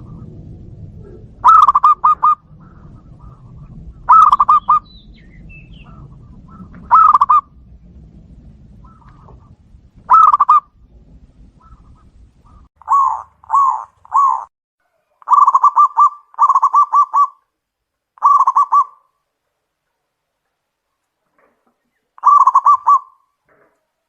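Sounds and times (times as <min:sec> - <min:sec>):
dove cooing: 0:00.0 - 0:07.6, 0:08.8 - 0:10.7, 0:11.5 - 0:17.4, 0:18.2 - 0:19.1, 0:22.2 - 0:23.3.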